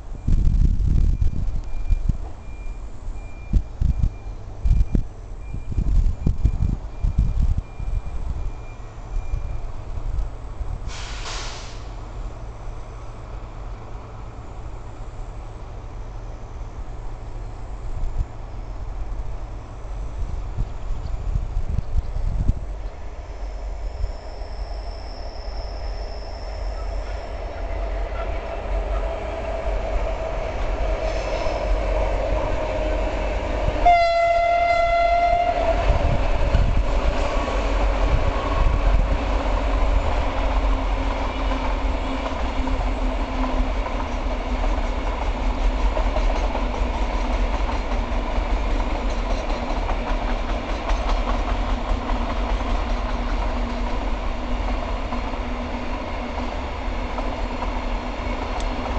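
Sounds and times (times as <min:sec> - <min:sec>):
diesel locomotives passing: 0:00.0 - 0:58.9
train horn blast: 0:33.7 - 0:36.2.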